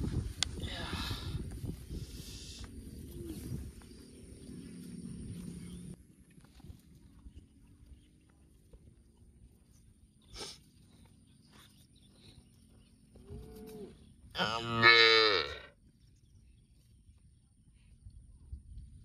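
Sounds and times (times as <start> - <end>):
cow mooing: 13.3 - 15.7.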